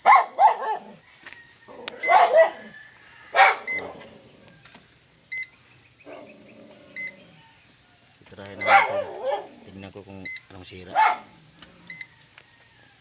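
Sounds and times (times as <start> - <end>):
dog barking: 0.0 - 1.0, 2.0 - 4.0, 8.6 - 9.6, 10.9 - 11.4.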